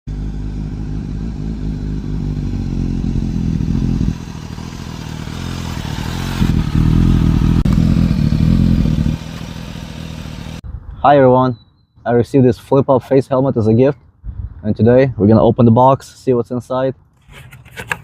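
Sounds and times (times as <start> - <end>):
motorcycle engine running: 0.1 - 10.6.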